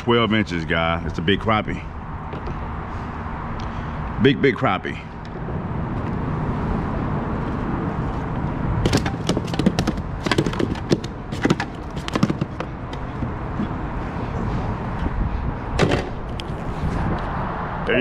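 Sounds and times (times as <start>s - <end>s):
handling knocks and clicks: 2.3s - 2.6s, 8.8s - 13.9s
wind rumbling on microphone: 12.8s - 18.0s.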